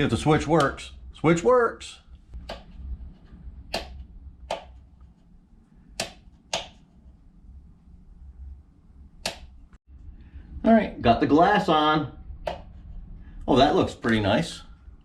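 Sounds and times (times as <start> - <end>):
faint low rumble: 2.0 - 5.9, 6.9 - 15.0.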